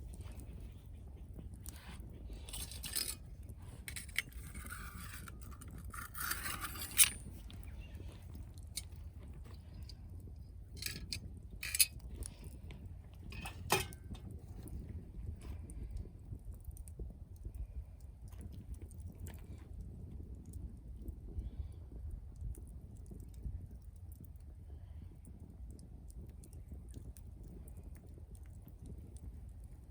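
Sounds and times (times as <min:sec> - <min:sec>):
wood fire crackling: 0:00.0 - 0:21.4.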